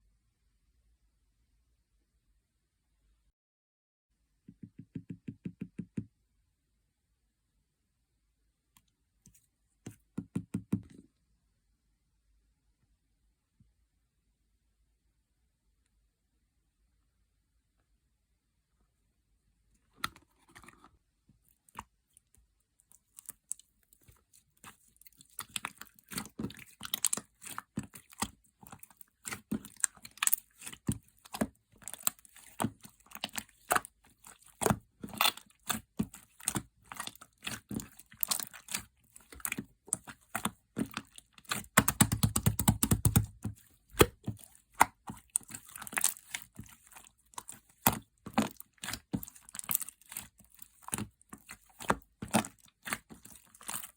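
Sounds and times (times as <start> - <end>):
slime crackling and popping: 23.0 - 53.9
slime squelching thuds: 23.2 - 53.9.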